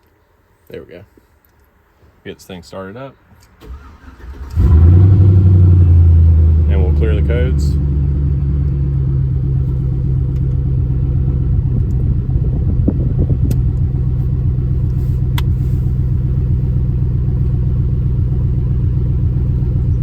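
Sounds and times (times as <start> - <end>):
truck engine idling: 3.7 - 20.0.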